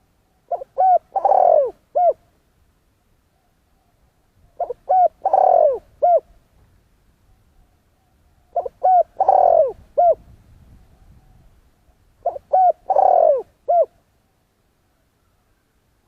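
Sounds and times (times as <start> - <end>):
dove cooing: 0.0 - 2.3, 3.3 - 6.4, 7.3 - 14.0.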